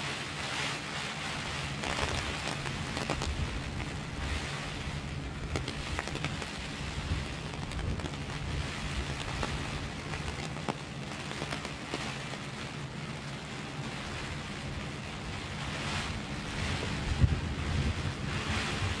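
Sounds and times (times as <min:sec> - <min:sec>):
heavy rain on plastic umbrella: 0:00.0 - 0:19.0
low rumble: 0:01.4 - 0:19.0
drops ticking on canopy: 0:01.7 - 0:15.1.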